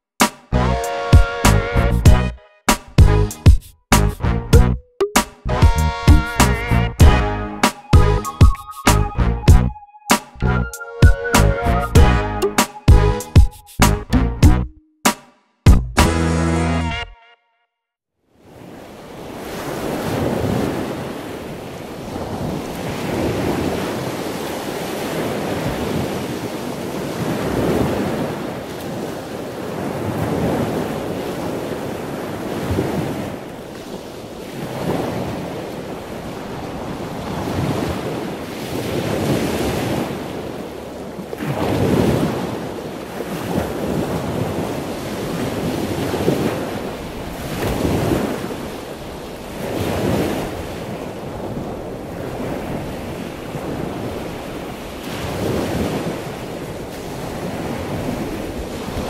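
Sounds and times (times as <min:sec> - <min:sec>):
ocean surf breaking: 0:18.4 - 0:59.0.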